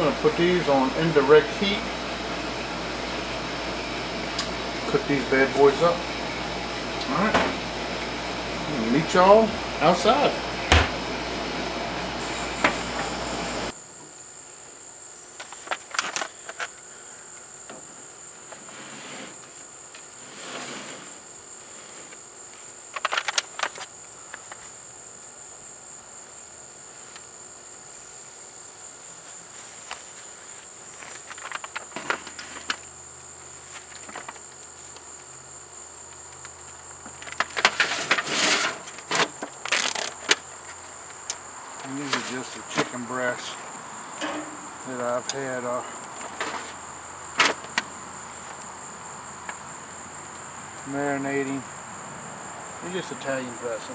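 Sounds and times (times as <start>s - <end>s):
insects trilling: 0.0s - 53.9s
knocks and clatters: 44.2s - 46.8s, 47.4s - 48.6s.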